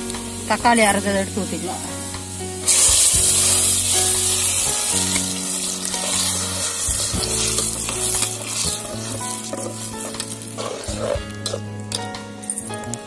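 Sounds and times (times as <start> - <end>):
tomato paste sizzling in oil: 0.0 - 13.0
steel ladle stirring in pot: 4.5 - 12.7.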